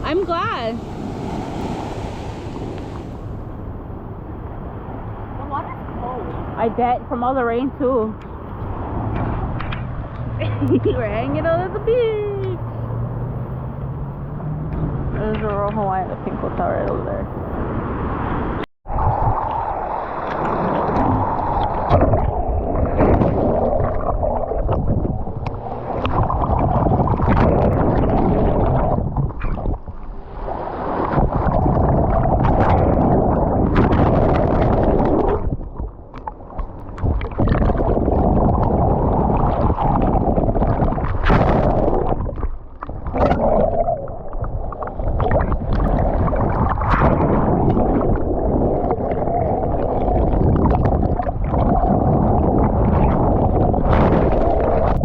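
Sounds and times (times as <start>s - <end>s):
seawater sloshing and gurgling: 0.0s - 3.6s, 18.8s - 55.0s.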